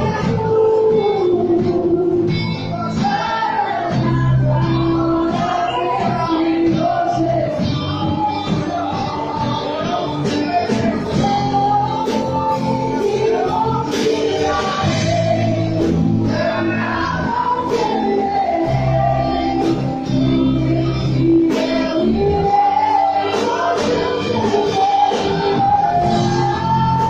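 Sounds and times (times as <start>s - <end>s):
bass: 0.0s - 27.0s
drums: 0.0s - 27.0s
guitar: 0.0s - 27.0s
people singing: 0.0s - 27.0s.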